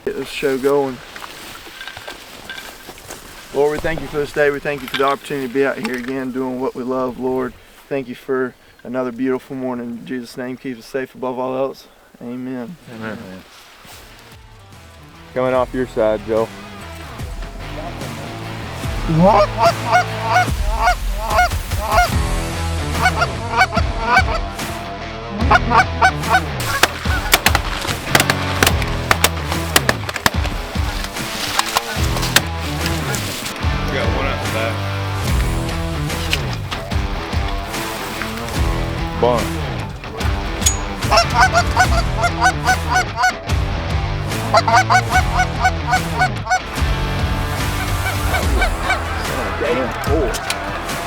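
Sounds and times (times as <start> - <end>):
goose honking: 19.0 - 22.2, 22.9 - 24.5, 25.4 - 33.5, 41.0 - 43.4, 44.4 - 46.9, 47.5 - 50.9.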